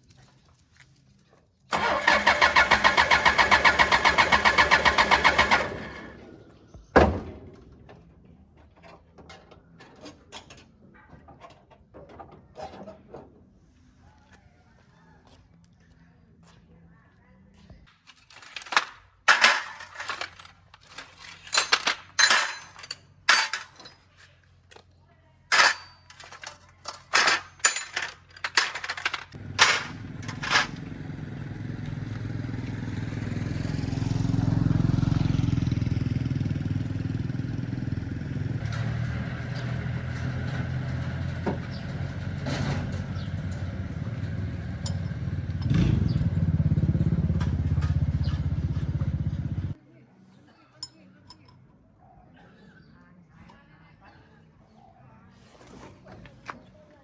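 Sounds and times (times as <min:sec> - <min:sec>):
engine starting and running: 0:01.7 - 0:06.6, 0:28.5 - 0:49.8
sharp knocks and clanks: 0:06.8 - 0:08.1, 0:27.1 - 0:30.9.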